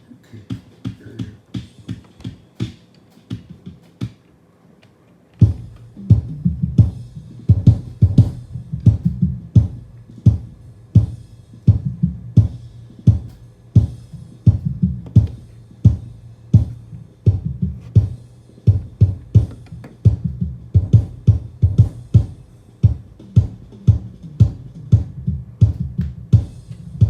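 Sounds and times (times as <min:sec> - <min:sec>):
drum kit and bass beat: 0:00.0 - 0:04.3, 0:05.4 - 0:27.0.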